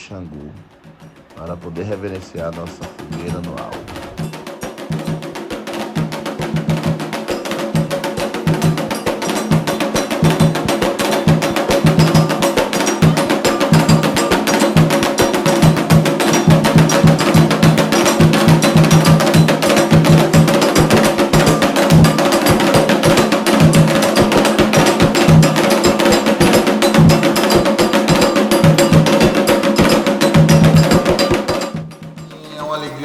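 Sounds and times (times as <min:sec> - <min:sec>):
ritual percussion drumming: 0:00.0 - 0:33.0
held pitched notes: 0:32.2 - 0:33.0.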